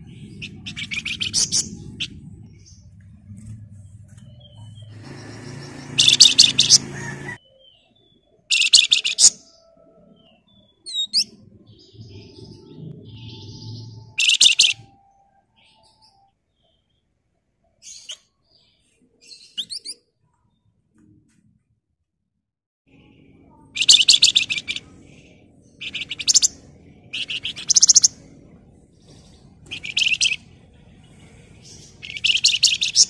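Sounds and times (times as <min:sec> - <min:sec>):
low rumbling noise: 0:00.0 - 0:07.4, 0:11.2 - 0:15.6, 0:22.9 - 0:32.2
bird whistled notes and chirps: 0:00.1 - 0:02.8, 0:04.3 - 0:16.8, 0:19.3 - 0:20.0, 0:23.6 - 0:28.2, 0:29.7 - 0:30.5, 0:31.7 - 0:33.0
bird harsh chattering bursts: 0:05.0 - 0:07.4, 0:23.8 - 0:24.8.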